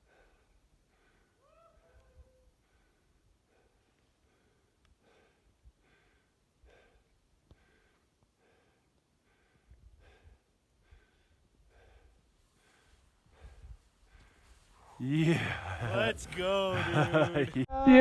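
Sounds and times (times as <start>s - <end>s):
quick rhythmic breathing: 3.4s - 17.7s.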